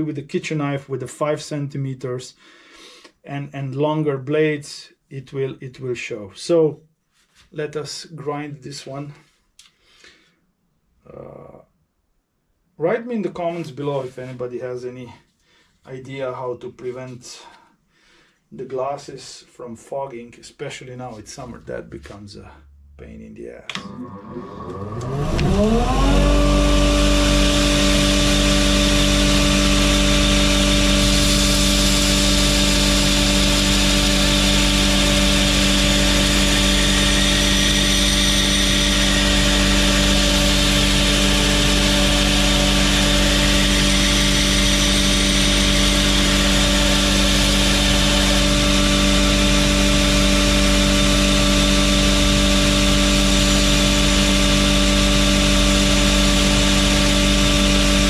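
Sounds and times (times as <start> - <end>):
belt grinder motor whine: 23.7 - 58.0.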